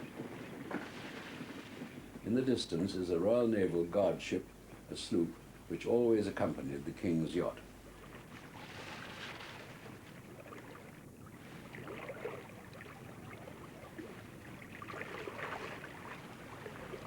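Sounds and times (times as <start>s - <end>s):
wind: 0.0s - 17.0s
sea water washing: 7.7s - 17.0s.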